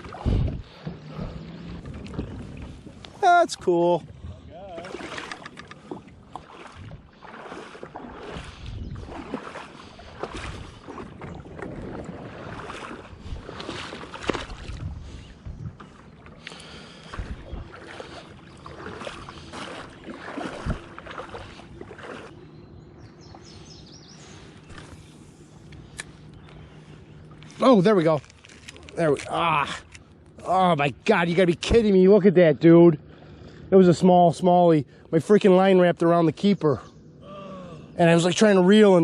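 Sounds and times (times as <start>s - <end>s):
paddle splashing in water: 0.0s - 30.0s.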